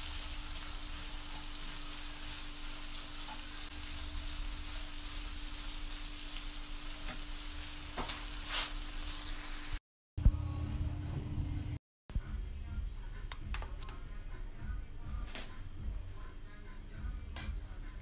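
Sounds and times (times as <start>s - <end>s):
meat sizzling in a frying pan: 0.0s - 9.8s.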